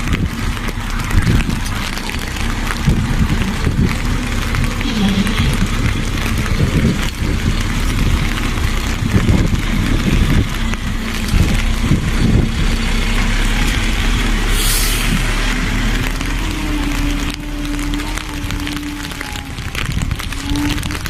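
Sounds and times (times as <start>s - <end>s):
diesel truck engine running: 0.0s - 21.0s
air hiss: 14.5s - 15.2s.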